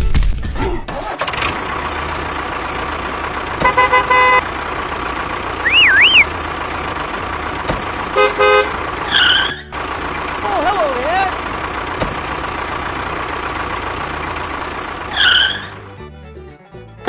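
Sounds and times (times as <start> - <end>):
vehicle engine running: 1.1 - 17.0
horn honking: 1.5 - 16.0
warbling whistle: 5.6 - 6.4.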